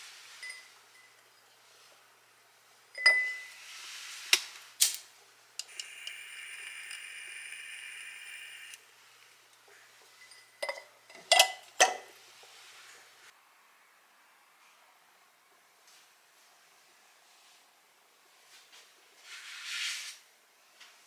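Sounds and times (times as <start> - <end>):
dishes and glassware clinking: 3.0 - 3.5, 10.2 - 12.1
high ringing tone: 5.7 - 8.8.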